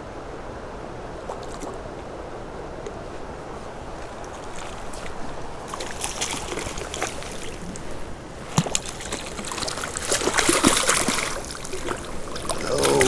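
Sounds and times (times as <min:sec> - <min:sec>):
creek water rushing: 0:00.0 - 0:13.0
fish splashing in water: 0:04.4 - 0:07.6, 0:08.5 - 0:13.0.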